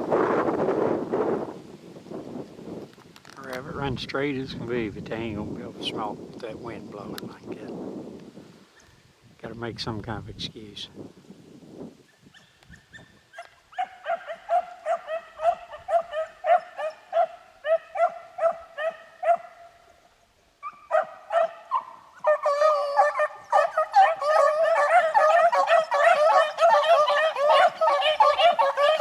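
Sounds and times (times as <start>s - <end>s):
hounds baying: 13.0s - 19.8s, 20.6s - 29.0s.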